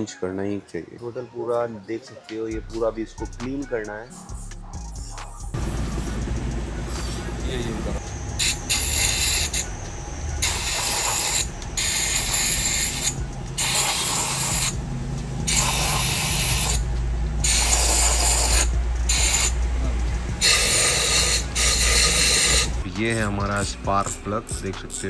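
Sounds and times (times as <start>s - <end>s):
ratchet wrench clicking: 5.6s - 25.0s.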